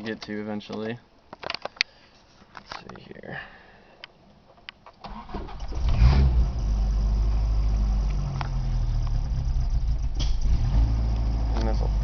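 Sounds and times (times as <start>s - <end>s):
car engine cranking and running: 5.0s - 12.0s.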